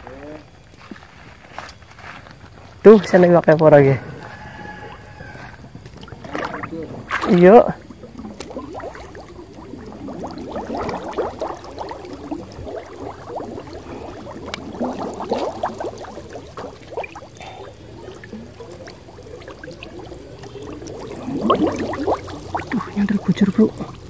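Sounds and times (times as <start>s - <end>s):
water splashing around wading legs: 4.8s - 24.0s.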